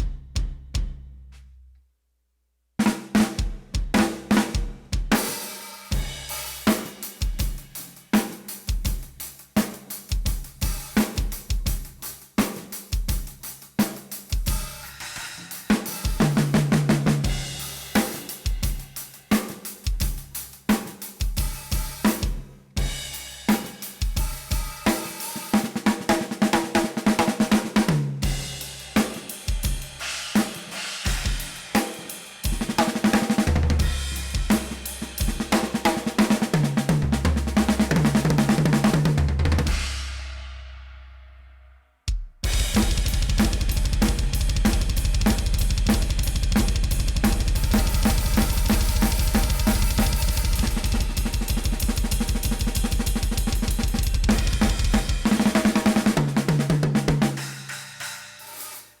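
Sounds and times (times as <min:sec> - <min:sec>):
fast drum rolls: 0:00.0 - 0:01.1, 0:02.9 - 0:05.3, 0:13.0 - 0:19.0, 0:19.8 - 0:40.3, 0:42.1 - 0:57.7
drum kit playing: 0:00.0 - 0:01.6, 0:02.8 - 0:41.0, 0:42.1 - 0:59.0.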